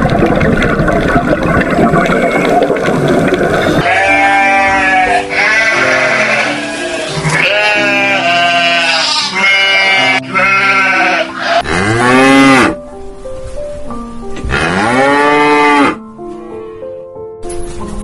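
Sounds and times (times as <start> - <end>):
goat bleating: 3.8 - 11.7
cow mooing: 3.8 - 12.8, 14.5 - 16.0.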